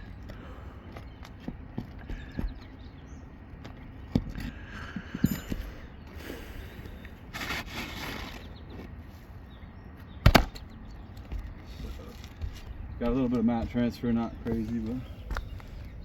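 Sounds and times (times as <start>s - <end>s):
footsteps on shingle roof: 0.0s - 16.0s
rustling scrapes: 7.3s - 9.3s.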